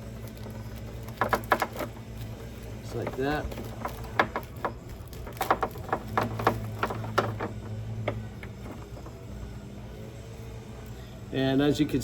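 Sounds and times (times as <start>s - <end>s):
steady low hum: 0.0s - 12.0s
sharp clicks and light knocks: 0.2s - 9.2s.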